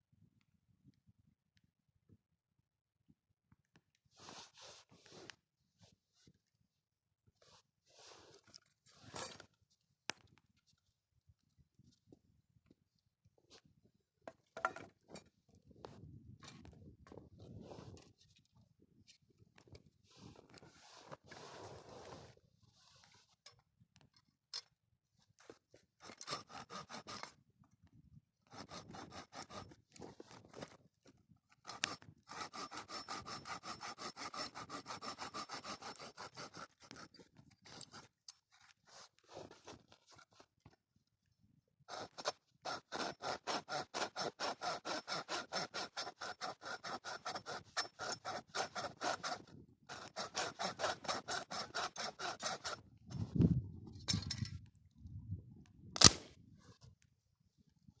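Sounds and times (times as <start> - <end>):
hand saw cutting wood: 26.0 - 27.4, 28.5 - 30.8, 31.6 - 40.3, 41.9 - 53.2, 56.0 - 56.2.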